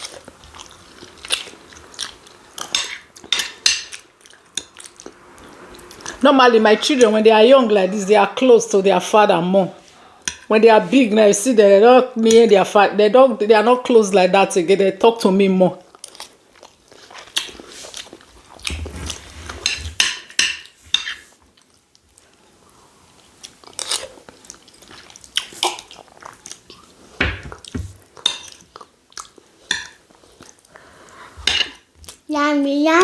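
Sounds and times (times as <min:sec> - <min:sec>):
people chewing food: 0:00.0 - 0:08.5, 0:15.8 - 0:20.2, 0:21.2 - 0:32.2.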